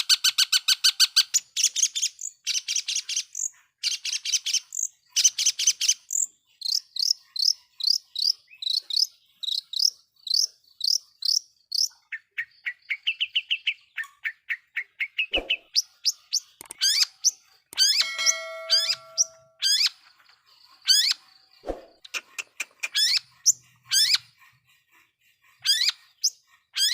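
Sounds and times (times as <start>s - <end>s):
bird singing: 0.9s - 26.9s.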